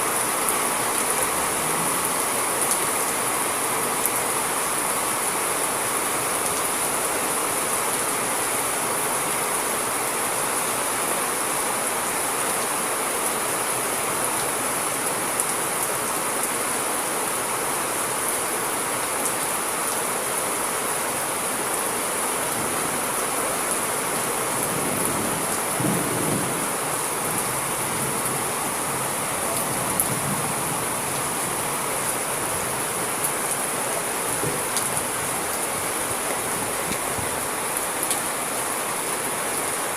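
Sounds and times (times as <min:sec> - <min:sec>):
steady rain falling: 0:00.0 - 0:39.9
low rumble of thunder: 0:24.7 - 0:28.3.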